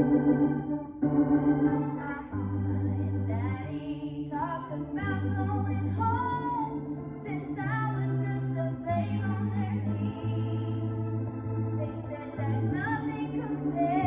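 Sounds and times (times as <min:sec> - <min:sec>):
organ accompaniment: 0:00.0 - 0:14.0
woman singing gospel song: 0:02.0 - 0:11.0, 0:11.8 - 0:14.0.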